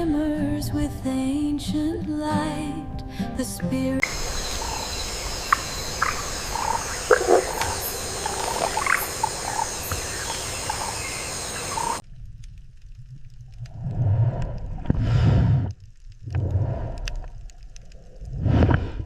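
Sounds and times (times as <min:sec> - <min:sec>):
chorus of frogs calling: 0:04.0 - 0:12.0
short chirps and croaks: 0:04.0 - 0:12.0
faint low rumble: 0:12.0 - 0:19.0.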